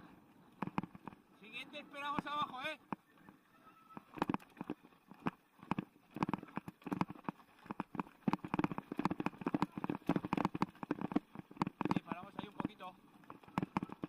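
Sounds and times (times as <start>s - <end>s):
mountain bike clattering: 4.0s - 14.0s.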